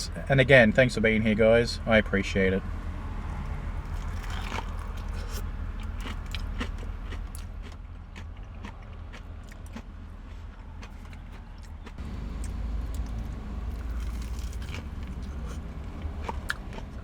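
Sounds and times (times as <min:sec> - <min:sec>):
car hum: 0:00.0 - 0:17.0
crunching fried chicken: 0:03.8 - 0:17.0.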